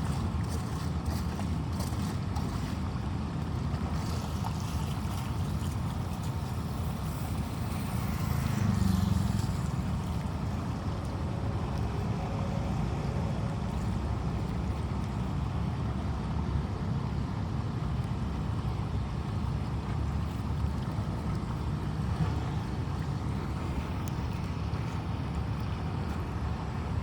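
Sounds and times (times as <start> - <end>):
running floodwater: 0.0 - 27.0
rainstorm: 6.8 - 10.1.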